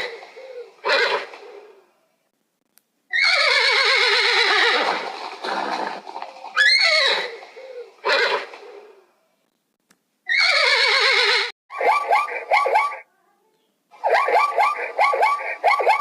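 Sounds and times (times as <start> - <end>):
horse whinnying: 0.8 - 1.5, 3.1 - 8.9, 10.3 - 11.8
horse snorting: 4.2 - 9.0.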